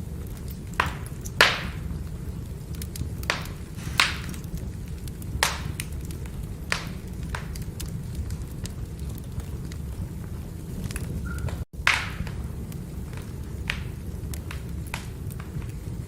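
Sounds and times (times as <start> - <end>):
burning firewood crackling: 0.0 - 16.0.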